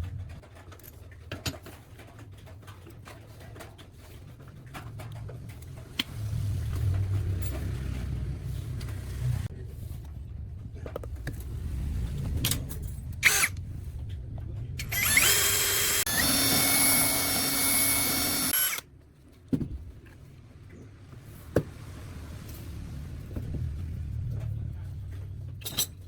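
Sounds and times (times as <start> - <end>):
power tool high whine: 13.2 - 13.5, 14.8 - 18.8.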